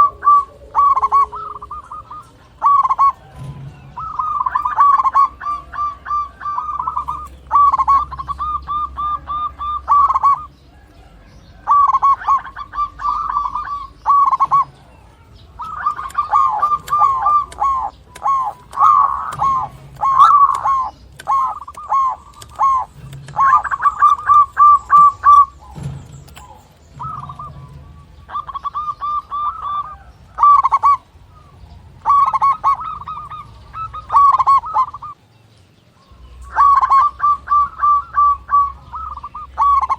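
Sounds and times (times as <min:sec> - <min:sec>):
dove cooing: 0:00.0 - 0:35.2, 0:36.1 - 0:39.9.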